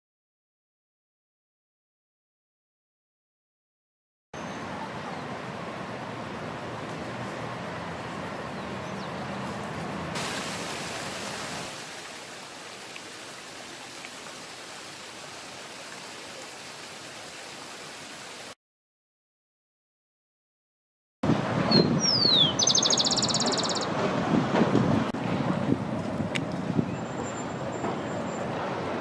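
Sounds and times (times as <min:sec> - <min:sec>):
rushing outdoor background noise: 0:04.4 - 0:18.6, 0:21.2 - 0:29.0.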